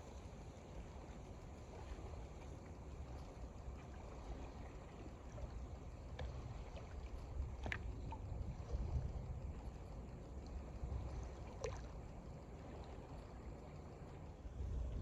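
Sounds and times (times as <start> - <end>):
small waves lapping at shore: 0.0 - 15.0
faint ticks: 4.8 - 15.0.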